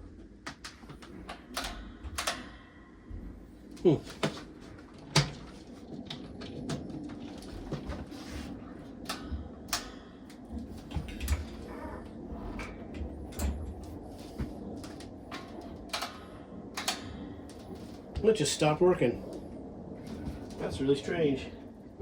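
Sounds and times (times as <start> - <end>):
fan switch clicks and cord knocks: 0.4 - 2.6, 9.0 - 11.7, 14.8 - 17.6.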